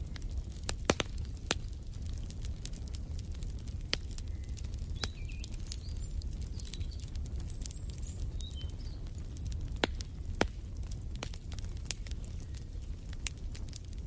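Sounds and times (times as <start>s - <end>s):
wood fire crackling: 0.0s - 14.0s
small birds chirping: 4.0s - 10.2s.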